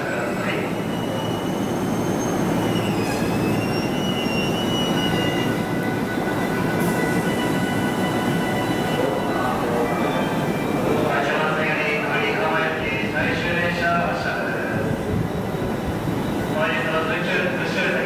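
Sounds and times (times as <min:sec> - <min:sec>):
train rumbling on tracks: 0:00.0 - 0:18.0
wheel squeal: 0:00.9 - 0:05.7.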